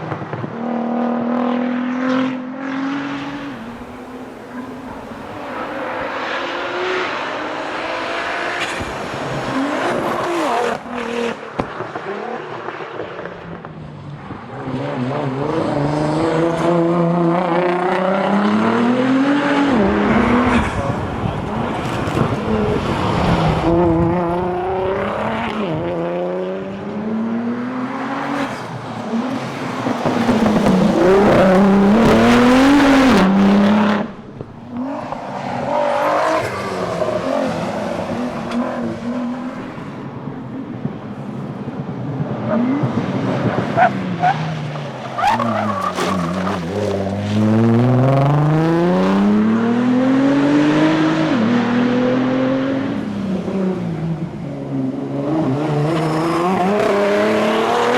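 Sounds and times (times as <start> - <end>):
car engine revving hard: 15.1 - 34.2, 45.2 - 53.0, 55.2 - 57.9.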